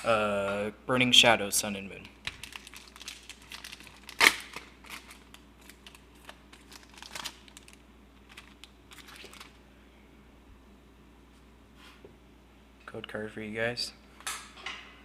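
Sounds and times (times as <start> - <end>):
foil pack crinkling: 2.2 - 9.6
foil tearing rip: 2.4 - 5.2.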